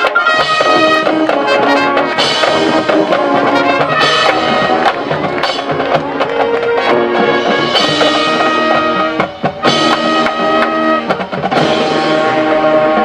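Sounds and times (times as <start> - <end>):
brass section playing chords: 0.0 - 13.0
percussion hits: 0.0 - 13.0.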